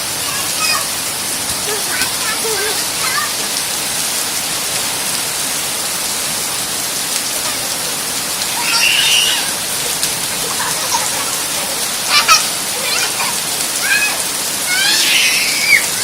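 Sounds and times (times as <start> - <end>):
heavy rain: 0.0 - 16.0
brief high cry: 8.6 - 9.5.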